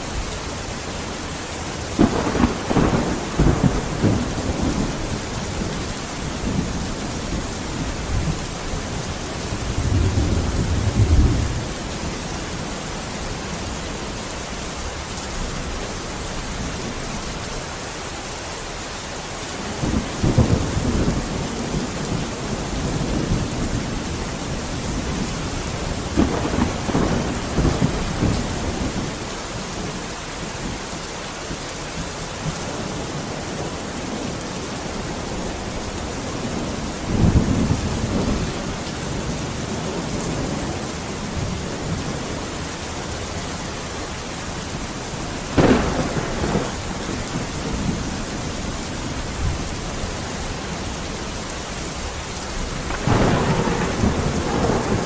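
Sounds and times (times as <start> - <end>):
rain hissing: 0.0 - 55.0
thunder rumbling: 1.7 - 11.9, 19.8 - 30.0, 45.3 - 50.6, 51.9 - 55.0.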